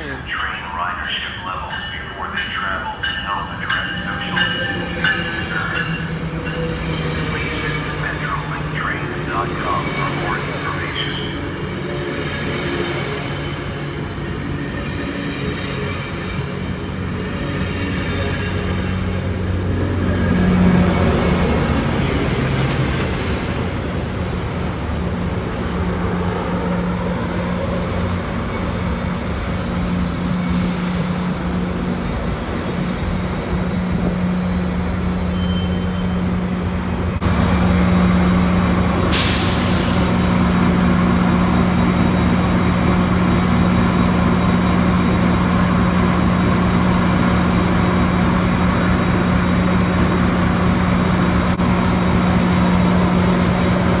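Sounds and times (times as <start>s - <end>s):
locomotive engine humming: 0.0s - 54.0s
train noise: 0.0s - 54.0s
high brake squeals: 3.0s - 13.9s, 29.0s - 36.7s, 39.1s - 54.0s
air brake hiss: 39.1s - 40.3s.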